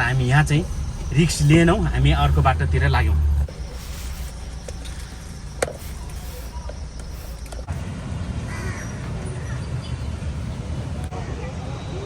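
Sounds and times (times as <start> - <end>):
steady low rumble: 0.0 - 9.2
caw-like bird call: 8.5 - 9.6.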